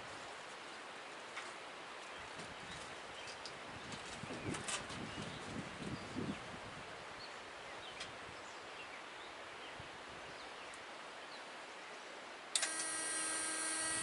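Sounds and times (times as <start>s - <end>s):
high-pitched multi-tone whine: 12.6s - 14.0s.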